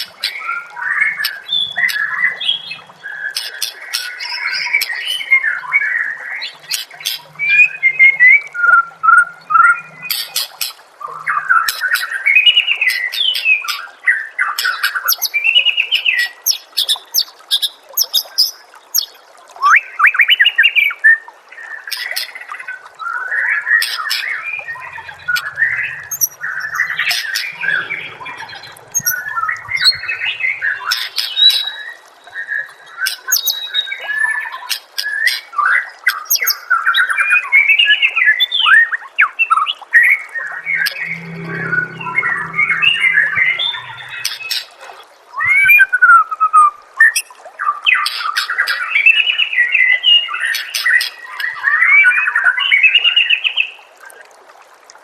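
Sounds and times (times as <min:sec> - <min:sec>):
bird singing whistled phrases: 0:24.6 - 0:32.5, 0:33.3 - 0:34.0.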